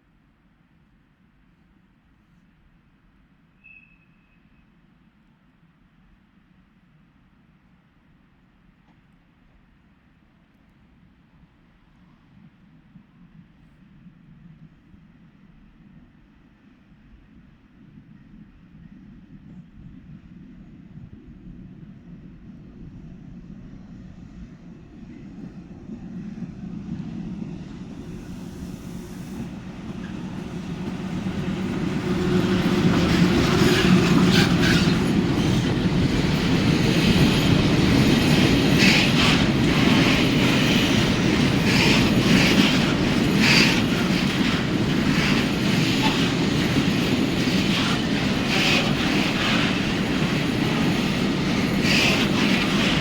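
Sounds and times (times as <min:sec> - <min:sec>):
train wheels clattering and squealing: 0:03.6 - 0:04.7, 0:28.0 - 0:53.0
freight train rumbling: 0:17.3 - 0:53.0.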